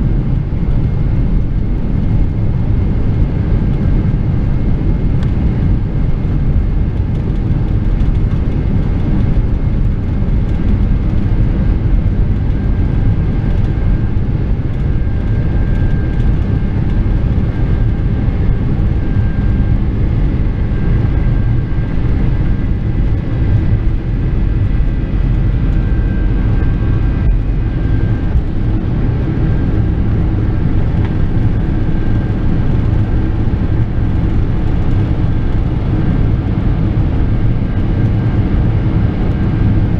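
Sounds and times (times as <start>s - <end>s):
jet engines deep rumble: 0.0s - 39.9s
faint wavering high whine: 11.6s - 34.6s.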